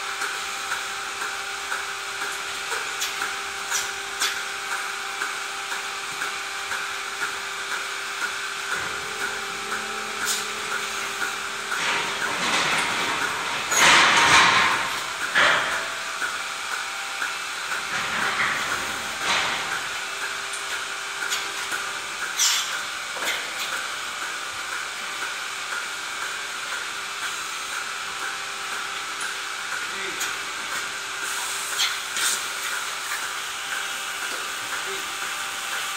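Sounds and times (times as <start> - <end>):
machine hum with soft pulses: 0.0 - 35.9.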